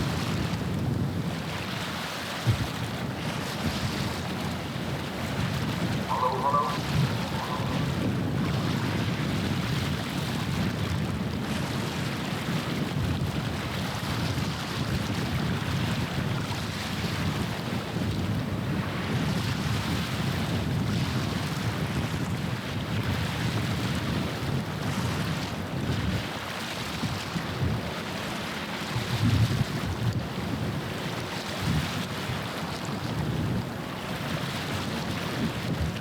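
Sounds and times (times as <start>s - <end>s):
water washing along shore: 0.0s - 18.2s
wind rumbling on microphone: 0.0s - 36.0s.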